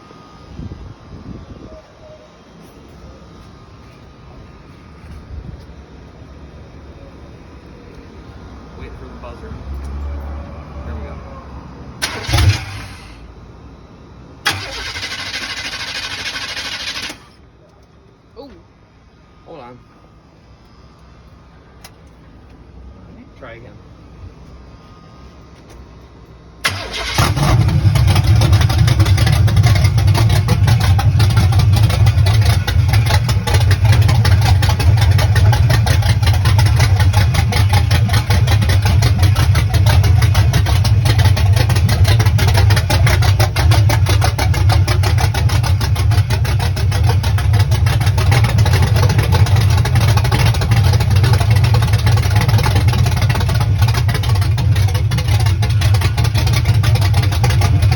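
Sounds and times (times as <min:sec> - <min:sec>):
loud car engine starting and running: 0:06.2 - 0:17.4, 0:26.5 - 0:57.9.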